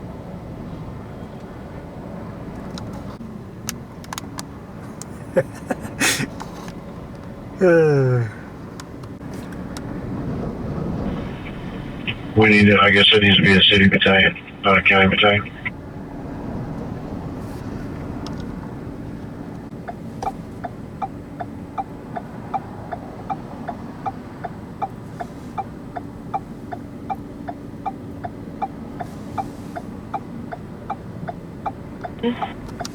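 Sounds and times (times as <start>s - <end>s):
vehicle hum: 0.0s - 32.9s.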